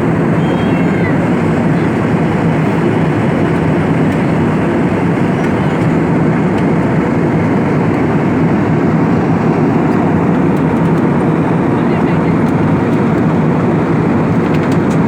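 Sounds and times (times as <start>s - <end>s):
airliner cabin engine rush: 0.0s - 15.0s.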